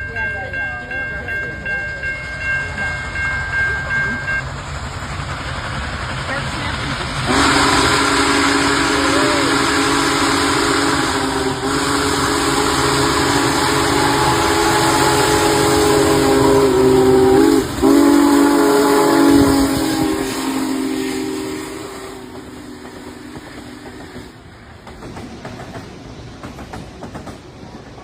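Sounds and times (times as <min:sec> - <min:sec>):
passing train running noise: 0:00.0 - 0:28.0
steam whistle chord: 0:07.3 - 0:23.4.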